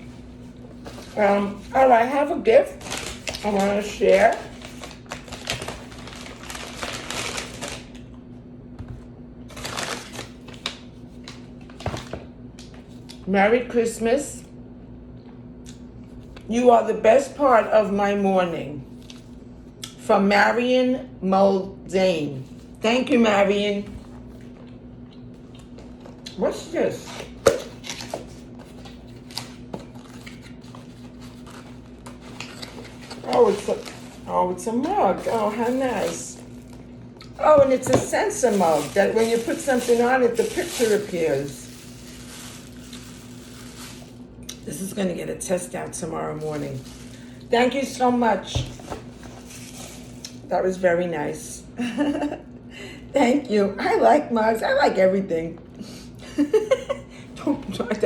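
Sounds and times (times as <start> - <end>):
steady low hum: 0.0 - 58.0
paper rustling: 0.7 - 8.0, 9.5 - 12.2, 27.0 - 36.8, 37.4 - 44.2, 46.4 - 47.4, 48.5 - 50.3.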